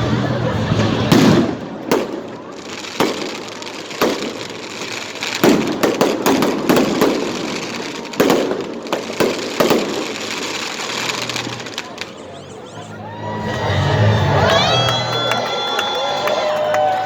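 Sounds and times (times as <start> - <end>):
fireworks banging and crackling: 0.0 - 13.0.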